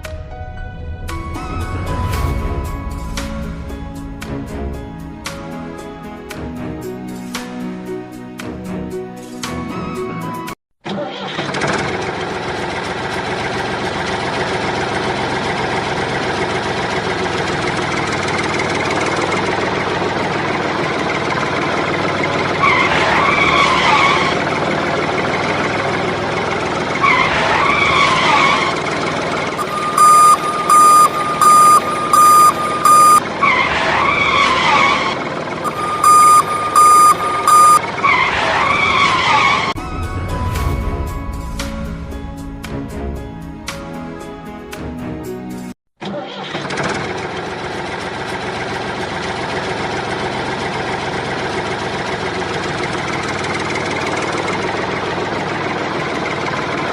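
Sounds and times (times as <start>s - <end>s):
vehicle engine running: 11.9s - 23.5s, 24.2s - 33.2s, 47.0s - 56.9s
reversing alarm beeps: 29.6s - 33.2s, 35.6s - 37.8s
warbling siren-like call: 29.6s - 33.2s, 35.7s - 37.8s.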